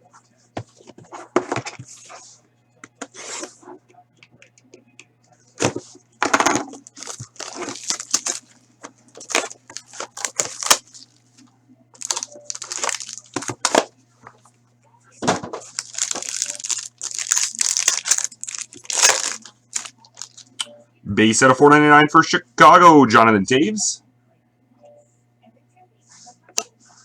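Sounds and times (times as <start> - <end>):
low electrical hum: 0.0 - 27.0
wrappers and cards rustling: 5.6 - 14.4, 15.5 - 20.6
packaging being torn and crumpled: 6.8 - 8.5, 9.2 - 11.2, 12.0 - 13.9, 15.6 - 20.5.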